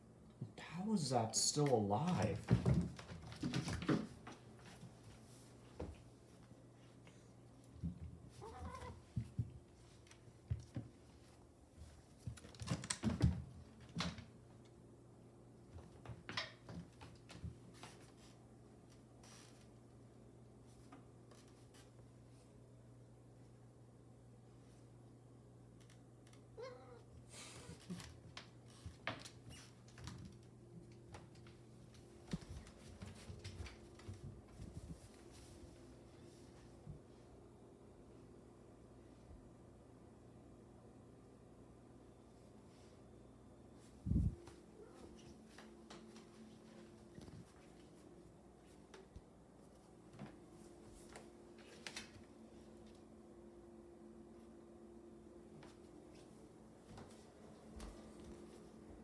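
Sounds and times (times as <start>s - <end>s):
low steady hum: 13.6s - 59.0s.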